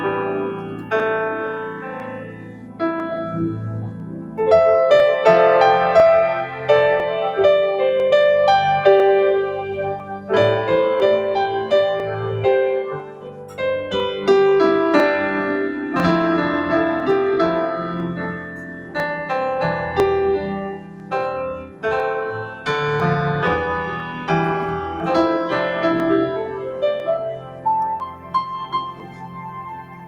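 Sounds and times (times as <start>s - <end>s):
electric keyboard piano melody: 0.0s - 30.0s.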